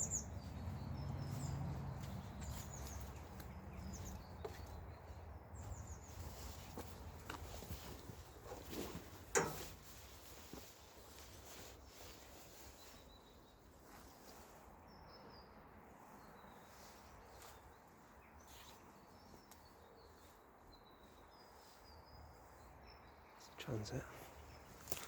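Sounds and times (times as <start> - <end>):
high bird chirps: 0.0 - 6.5.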